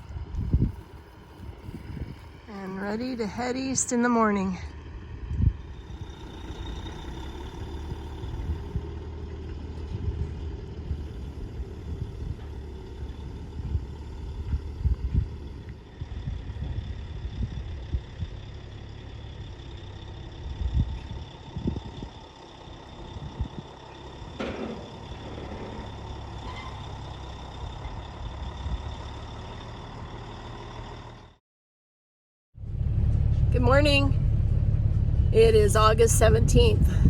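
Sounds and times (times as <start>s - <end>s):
vehicle engine running: 0.0s - 31.4s, 32.6s - 37.0s.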